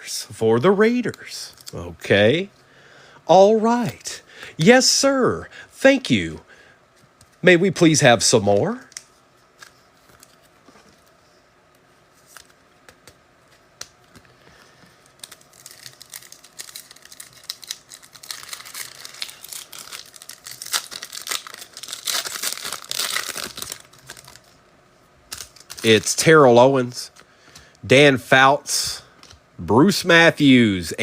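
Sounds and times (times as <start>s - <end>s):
foil wrapper tearing and crinkling: 15.0s - 24.5s, 25.3s - 26.1s.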